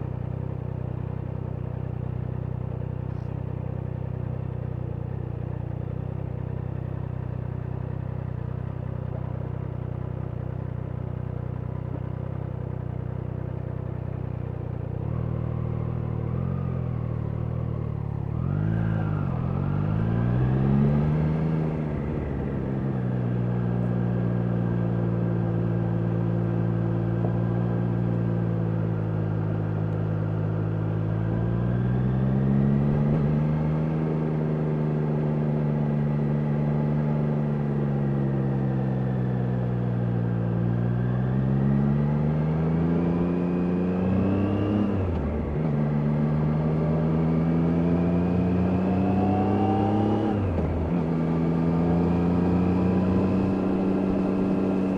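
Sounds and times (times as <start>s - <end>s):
motorcycle engine accelerating: 14.4s - 54.9s.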